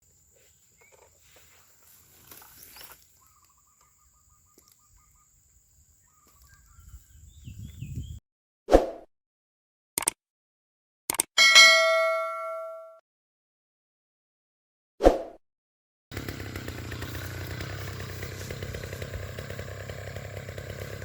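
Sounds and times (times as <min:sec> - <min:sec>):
birds chirping and trilling: 0:00.4 - 0:08.2.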